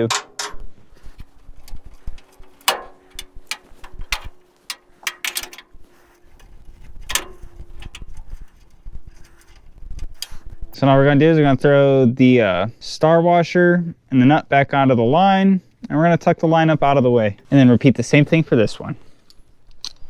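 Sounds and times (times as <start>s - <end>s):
wrench and hardware clinking: 0.0s - 10.8s.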